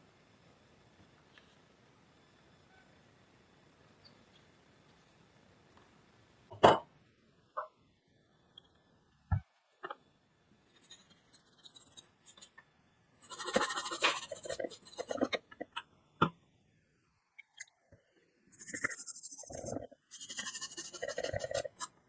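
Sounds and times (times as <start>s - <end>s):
close scratching: 10.7s - 12.6s, 13.2s - 15.8s, 18.5s - 22.0s.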